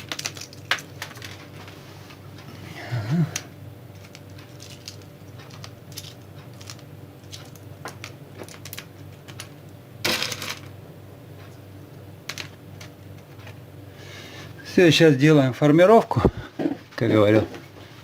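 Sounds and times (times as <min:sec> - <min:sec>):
small objects clicking: 0:00.0 - 0:01.4, 0:04.0 - 0:09.5.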